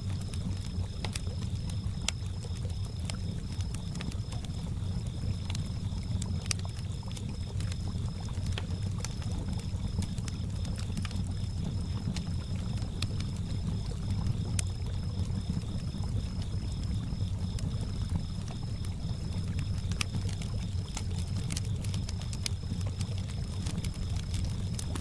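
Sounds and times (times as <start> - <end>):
crickets chirping: 0.0 - 25.0
wood fire crackling and popping: 0.0 - 25.0.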